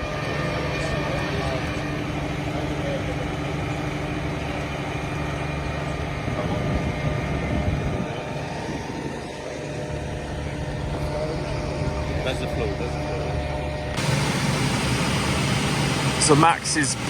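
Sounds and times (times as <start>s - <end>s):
tractor and harvester running: 0.0s - 17.0s.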